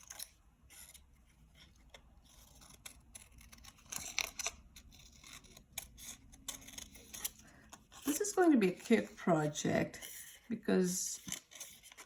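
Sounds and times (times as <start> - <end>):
scissors snipping paper: 0.0 - 9.0.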